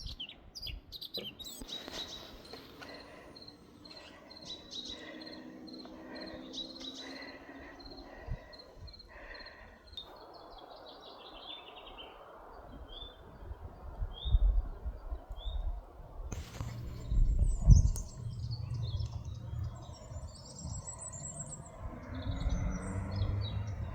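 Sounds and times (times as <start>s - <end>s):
small birds singing: 0.0s - 23.9s
wind buffeting on microphone: 11.4s - 23.9s
descending bird trill: 16.4s - 23.9s.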